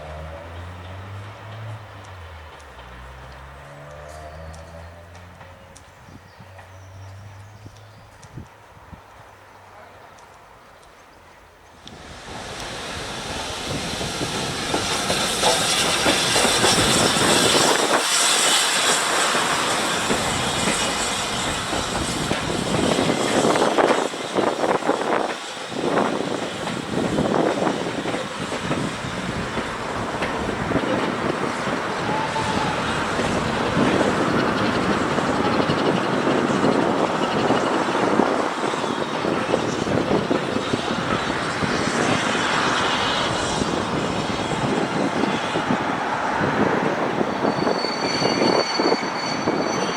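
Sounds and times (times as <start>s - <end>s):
wheels clicking over rail joints: 0.4s - 9.2s, 14.4s - 41.6s
train rushing past: 11.8s - 49.9s.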